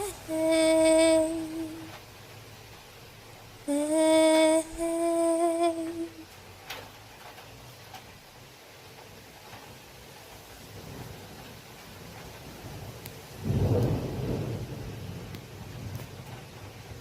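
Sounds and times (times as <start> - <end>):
woman humming: 0.0 - 2.0, 3.7 - 6.3
faint hiss: 0.0 - 17.0
small tick: 13.0 - 14.0, 15.3 - 16.4.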